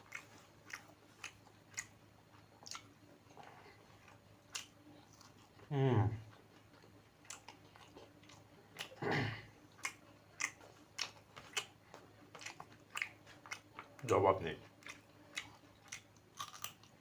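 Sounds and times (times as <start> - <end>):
chewing food: 0.0 - 17.0.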